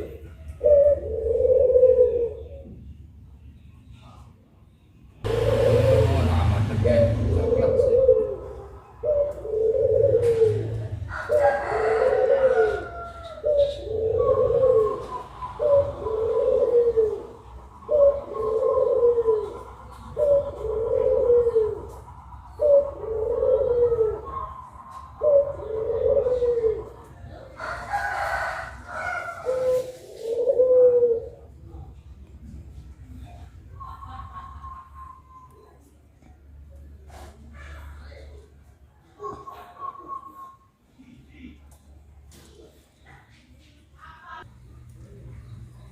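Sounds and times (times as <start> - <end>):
dove cooing: 0.0 - 2.9, 5.2 - 32.0, 36.9 - 40.8.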